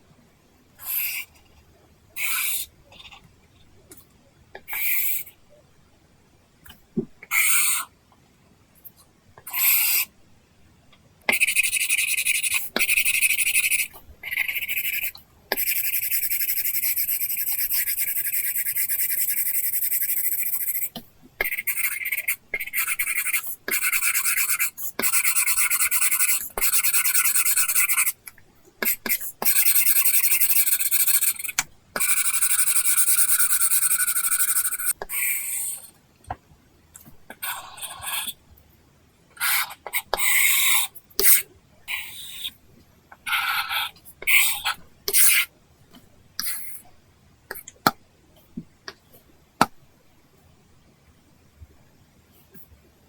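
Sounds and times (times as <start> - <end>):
stylus scratching on screen: 0.8 - 3.9, 4.6 - 5.4, 11.3 - 36.0, 37.3 - 38.4, 43.2 - 45.5, 46.4 - 46.9.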